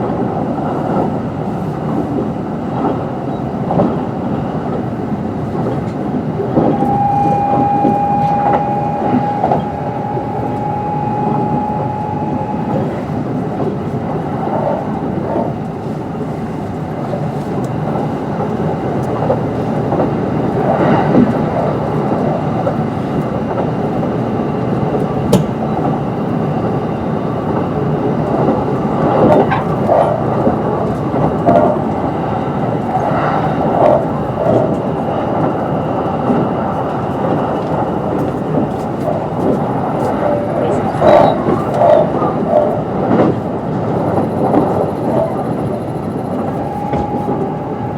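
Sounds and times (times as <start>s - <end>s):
train wheels rumbling on rail: 0.0s - 47.9s
thin high electric motor tone: 6.7s - 13.2s.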